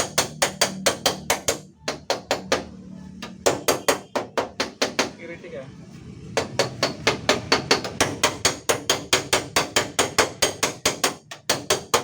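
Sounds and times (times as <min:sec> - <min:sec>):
rapid hammer taps on sheet metal: 0:06.4 - 0:12.0.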